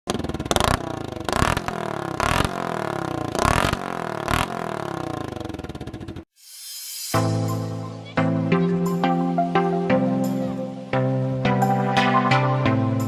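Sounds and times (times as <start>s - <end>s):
motorcycle engine revving: 0.1s - 6.3s.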